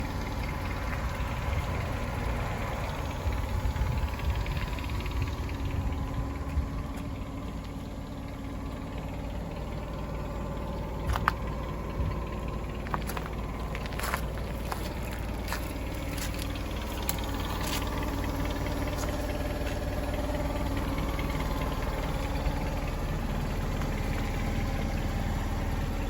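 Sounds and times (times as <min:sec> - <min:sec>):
forklift engine idling: 0:00.0 - 0:26.0.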